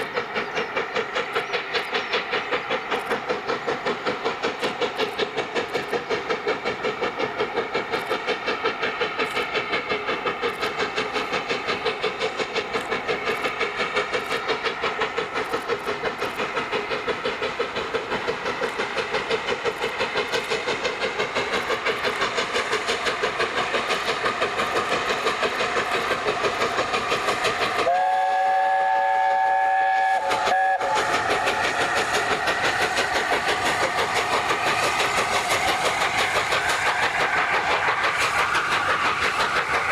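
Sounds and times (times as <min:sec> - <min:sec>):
steam locomotive exhaust beats: 0:00.0 - 0:39.9
steam locomotive chime whistle: 0:27.8 - 0:32.1.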